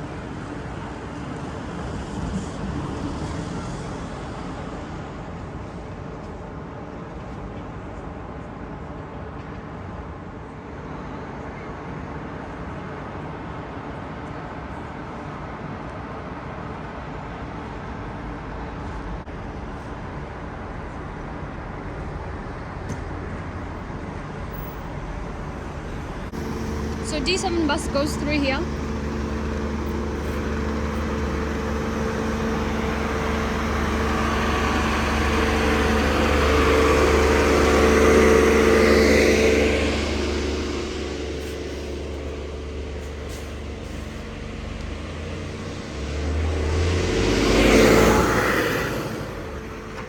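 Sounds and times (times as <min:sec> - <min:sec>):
street traffic noise: 0:00.0 - 0:50.0
vehicle passing by: 0:26.2 - 0:50.0.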